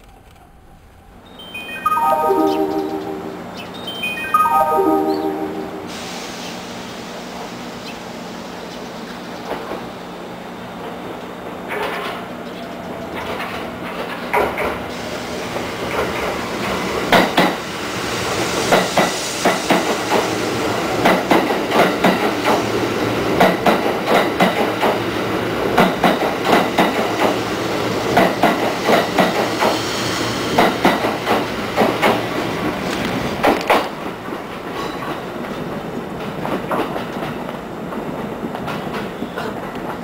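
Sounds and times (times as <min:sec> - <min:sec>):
quiet train hum: 0:00.0 - 0:40.0
train wheels clicking over rail joints: 0:10.8 - 0:12.3, 0:13.0 - 0:14.9, 0:15.6 - 0:17.6, 0:18.2 - 0:40.0.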